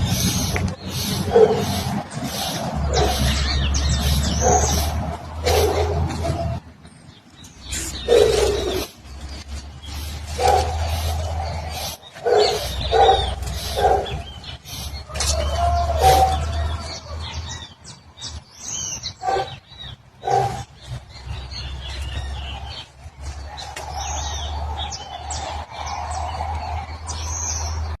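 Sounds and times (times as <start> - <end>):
birds chirping and calling: 0.0 - 28.0
lower-pitched bird calls: 7.6 - 25.9.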